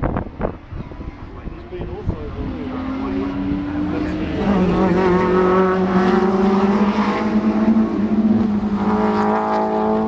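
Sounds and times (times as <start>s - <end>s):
racing car engine at high revs: 0.0s - 10.0s.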